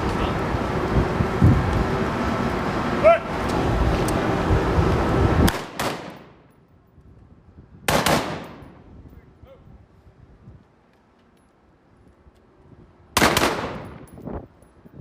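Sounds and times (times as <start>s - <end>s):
steady rushing noise: 0.0s - 9.1s
loud gunshots: 5.5s - 6.3s, 7.9s - 8.6s, 13.2s - 14.0s.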